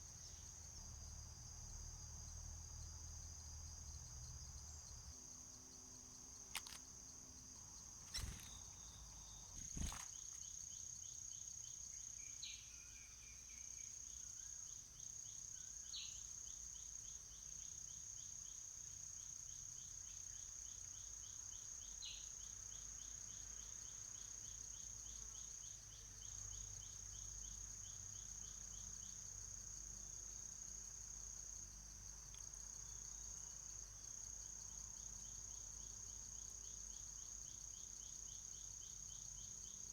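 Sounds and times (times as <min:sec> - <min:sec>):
rapid insect chirps: 0:00.0 - 0:39.9
sharp clicks: 0:06.5 - 0:06.9
high-pitched insect drone: 0:08.1 - 0:08.6.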